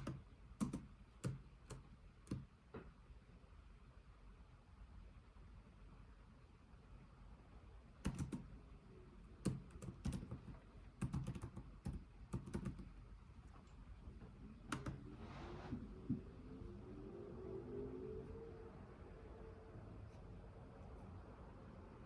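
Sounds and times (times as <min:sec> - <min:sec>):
computer keyboard typing: 0:00.0 - 0:02.5, 0:08.0 - 0:08.5, 0:09.4 - 0:13.0, 0:14.7 - 0:15.0.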